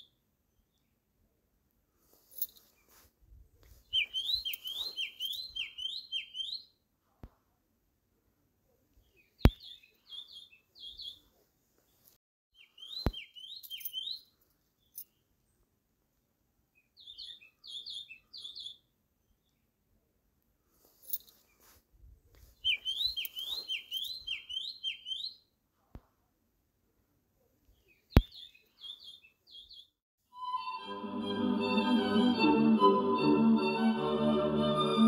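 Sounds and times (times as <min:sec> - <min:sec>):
bird calling: 0:04.0 - 0:06.6, 0:22.6 - 0:25.4.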